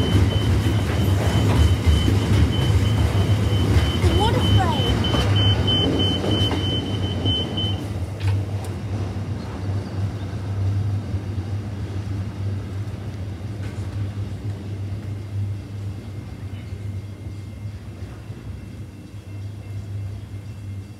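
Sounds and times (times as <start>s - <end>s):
freight train rumbling past: 0.0s - 20.9s.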